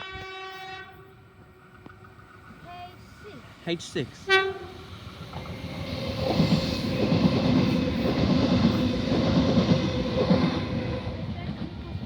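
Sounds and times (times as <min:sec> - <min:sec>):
train motor hum: 0:00.7 - 0:12.0
train wheels clattering on rails: 0:01.2 - 0:12.0.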